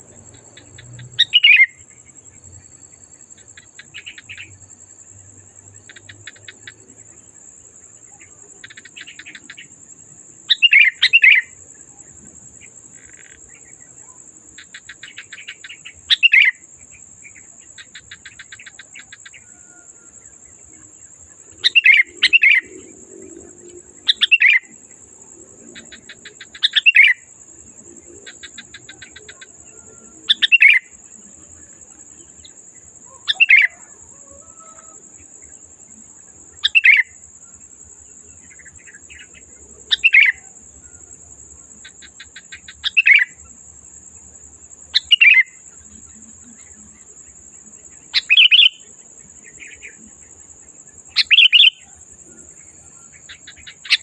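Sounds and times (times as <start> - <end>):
steady high-pitched whine: 0.0 - 34.2
bulbul singing: 0.1 - 2.2, 10.5 - 11.6, 21.5 - 22.9, 23.6 - 24.8, 25.8 - 27.3, 28.3 - 31.0, 32.3 - 34.0, 45.0 - 47.1, 48.0 - 50.1, 51.0 - 54.0
faint rapid bird chattering: 8.2 - 9.8, 48.0 - 50.0, 51.1 - 54.0.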